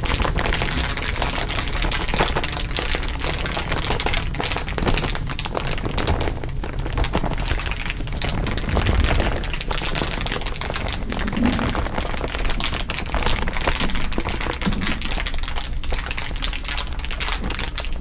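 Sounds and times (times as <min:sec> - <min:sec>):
material crinkling: 0:06.1 - 0:12.3.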